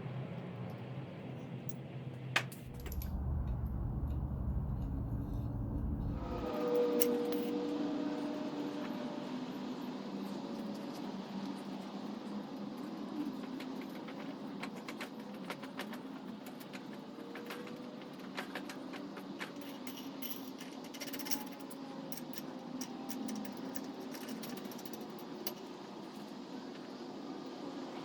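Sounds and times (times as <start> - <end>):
steady background hum: 2.3 - 7.5
small metal parts clinking: 2.6 - 7.5, 19.4 - 25.7.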